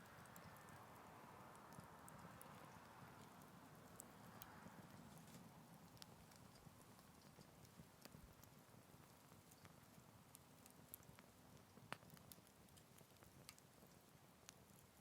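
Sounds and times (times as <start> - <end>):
small wood fire crackling: 0.0 - 15.0.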